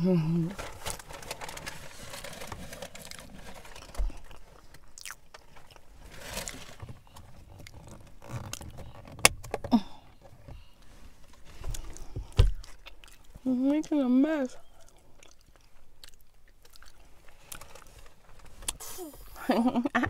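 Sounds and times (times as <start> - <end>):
person chewing food: 3.7 - 5.9, 11.6 - 14.0, 14.6 - 18.0.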